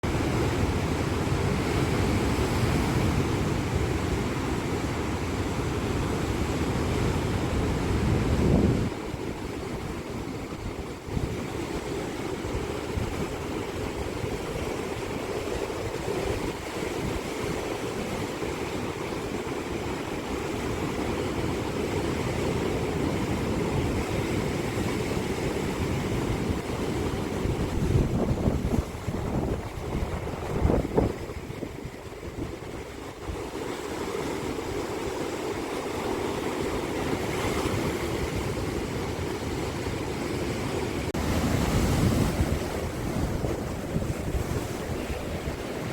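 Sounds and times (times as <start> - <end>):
sea waves breaking on shore: 0.0 - 45.9
wind buffeting microphone: 6.4 - 19.1, 22.4 - 45.9.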